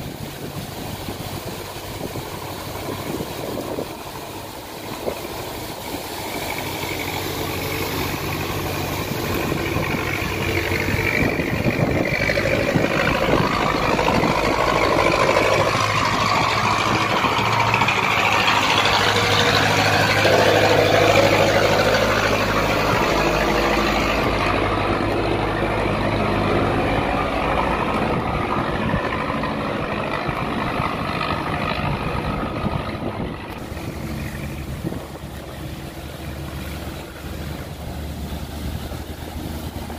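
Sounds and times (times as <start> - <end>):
steady hiss: 0.0 - 16.4
boat engine passing: 0.0 - 39.9.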